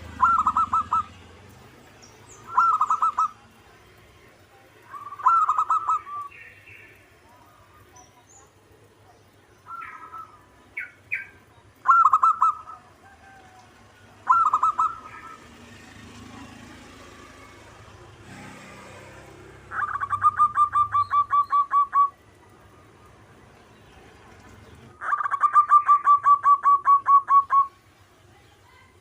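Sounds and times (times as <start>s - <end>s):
dove cooing: 0.0s - 1.2s, 2.3s - 3.5s, 4.9s - 6.6s, 9.7s - 16.1s, 19.6s - 22.6s, 25.0s - 27.8s.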